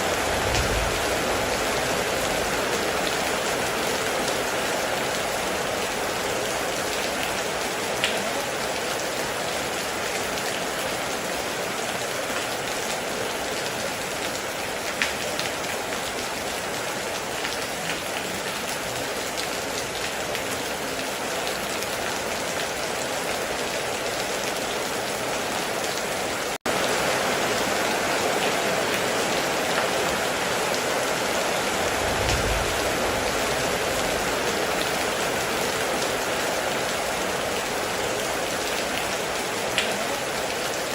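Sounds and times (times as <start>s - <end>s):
low rumble: 0.0s - 2.7s, 31.8s - 34.5s
heavy rain falling: 0.0s - 40.9s.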